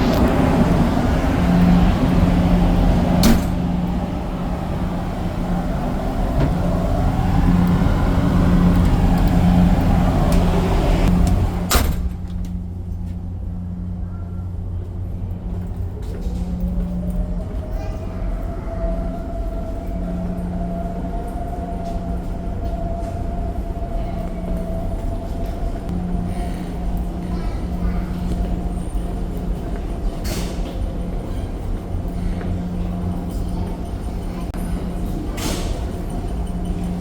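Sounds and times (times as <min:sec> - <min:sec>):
rushing noise: 0:00.0 - 0:12.0
ship engines droning: 0:00.0 - 0:37.0.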